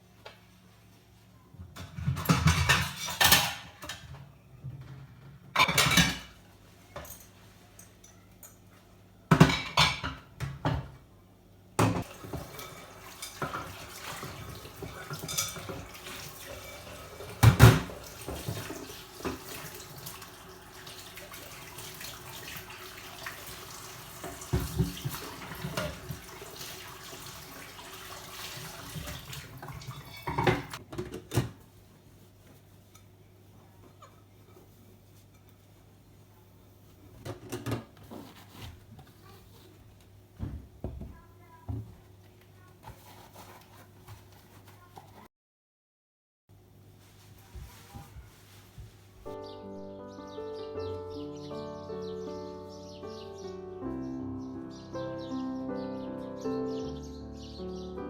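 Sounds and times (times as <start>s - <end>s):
dishes clattering in sink: 1.6s - 4.2s, 4.8s - 7.4s, 9.3s - 11.0s, 11.8s - 31.6s, 37.2s - 38.4s
tap running: 11.8s - 30.8s.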